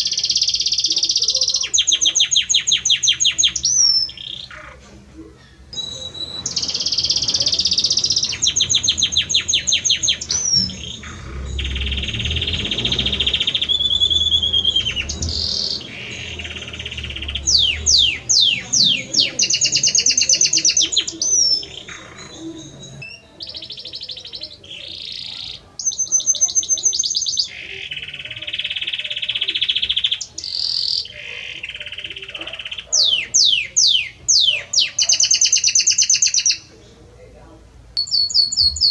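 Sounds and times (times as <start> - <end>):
canary singing trills: 0.0 - 37.0, 38.0 - 38.9.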